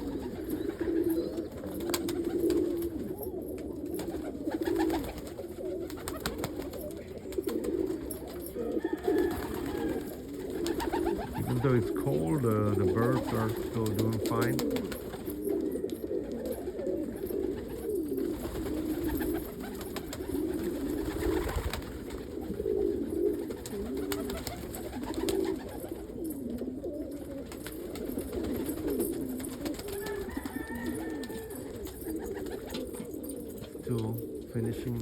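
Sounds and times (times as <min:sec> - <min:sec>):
pigeons cooing: 0:00.0 - 0:35.0.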